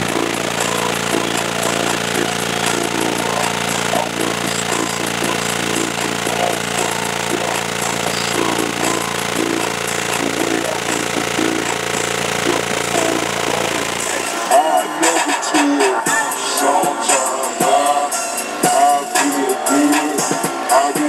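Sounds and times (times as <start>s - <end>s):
machine rattling: 0.0s - 14.6s
people's voices: 0.0s - 21.0s.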